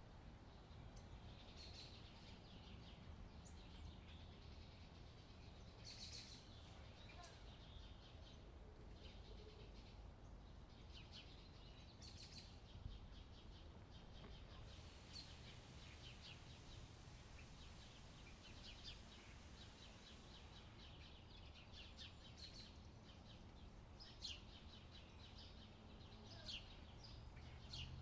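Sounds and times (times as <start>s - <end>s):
birds chirping: 19.7s - 28.0s.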